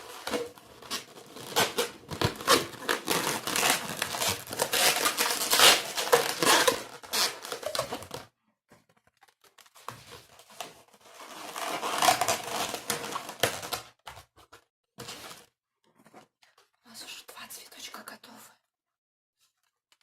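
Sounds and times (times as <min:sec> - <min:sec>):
rubber balloons squeaking: 0:01.0 - 0:08.1.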